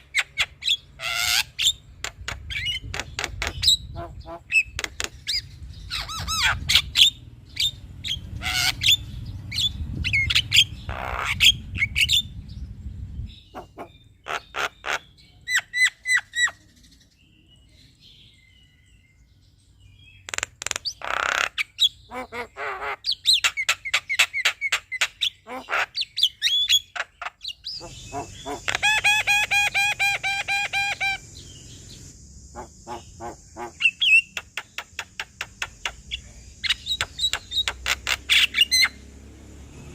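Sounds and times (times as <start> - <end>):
low rumble: 11.5 - 13.5
myna whistled calls: 13.3 - 16.9, 20.3 - 39.0.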